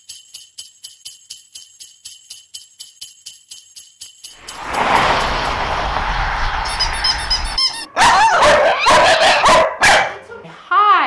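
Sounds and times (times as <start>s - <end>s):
sleigh bells jingling: 0.0s - 5.9s.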